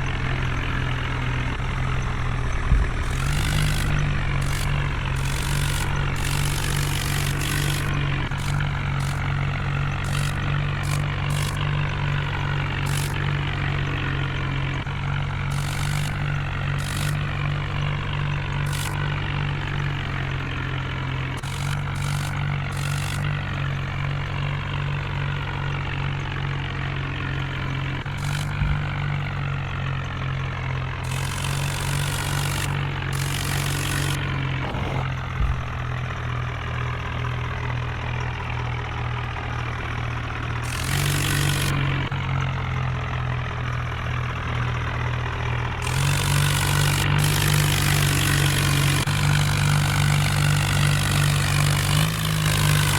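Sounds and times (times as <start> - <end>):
heavy diesel engine running: 0.0 - 52.9
hissing bursts: 3.0 - 12.2, 12.8 - 13.4, 15.5 - 17.5, 18.7 - 19.2, 21.4 - 23.4, 28.2 - 28.7, 31.0 - 35.1, 40.6 - 42.1, 45.8 - 52.9.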